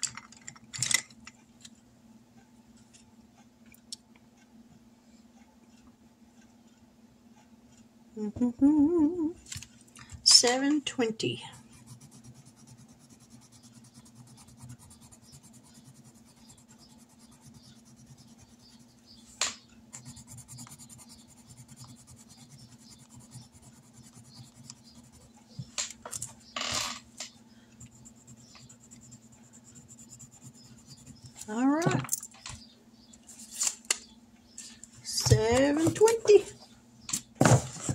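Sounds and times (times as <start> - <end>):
low steady hum: 0.0 - 37.9
pen scratching on paper: 11.4 - 19.0, 20.0 - 25.3, 27.9 - 31.4.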